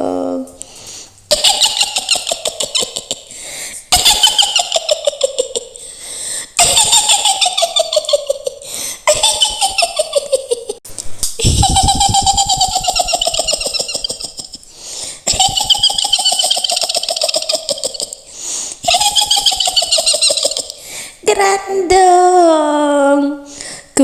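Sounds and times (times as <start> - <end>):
woman cackling: 1.3 - 3.3, 3.9 - 5.8, 6.6 - 10.8, 11.4 - 20.8.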